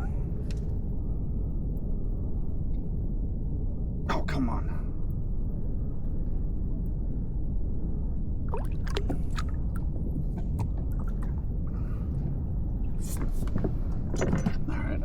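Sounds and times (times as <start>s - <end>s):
low rumble: 0.0s - 15.0s
small splashes and knocks: 8.5s - 11.4s
water lapping against kayak hull: 8.5s - 11.4s.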